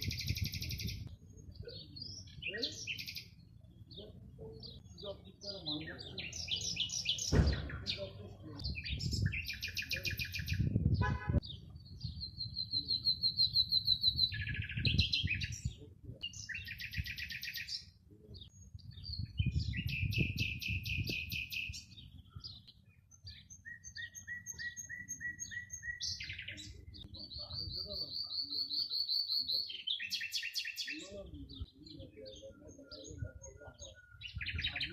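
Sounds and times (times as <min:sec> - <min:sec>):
birds singing: 0:00.0 - 0:34.9
low wind rumble: 0:10.4 - 0:12.8, 0:18.5 - 0:22.6.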